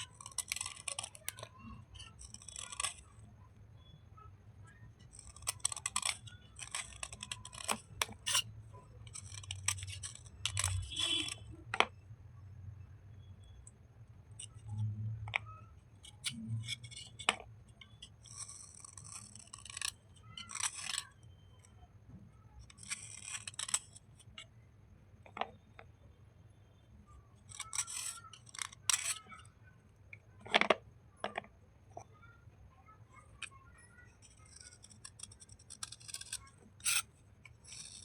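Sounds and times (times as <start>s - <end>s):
slate and chalk scraping: 0.0s - 3.4s, 5.0s - 11.9s, 14.4s - 24.5s, 27.4s - 29.6s, 33.1s - 38.0s.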